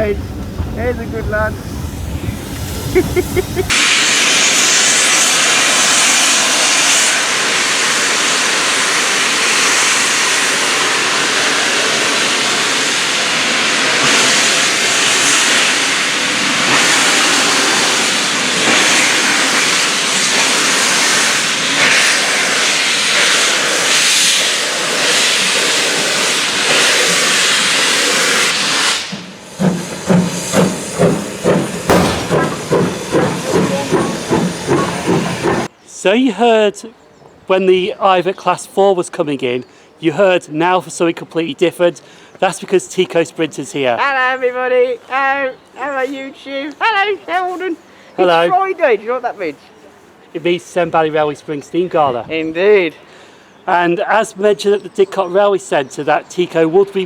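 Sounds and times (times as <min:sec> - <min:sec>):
steam locomotive hissing steam: 0:00.0 - 0:35.8, 0:45.1 - 0:52.0.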